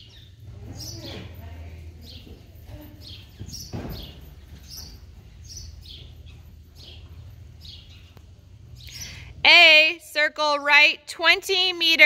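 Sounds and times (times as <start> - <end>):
small birds chirping: 0.0 - 9.5
steady low hum: 0.0 - 11.4.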